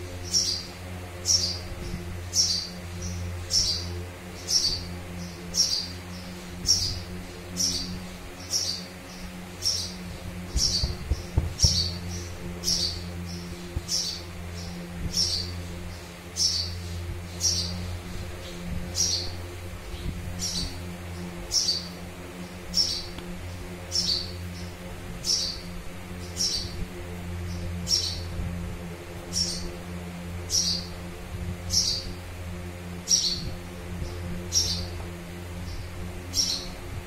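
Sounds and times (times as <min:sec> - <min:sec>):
low electrical hum: 0:00.0 - 0:37.0
bird chirping: 0:00.2 - 0:26.8.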